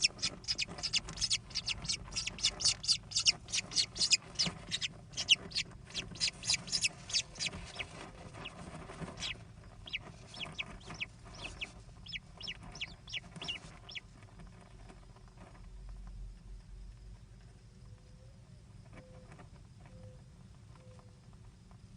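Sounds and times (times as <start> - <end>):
kestrel calling: 0.0 - 7.9, 9.2 - 14.0.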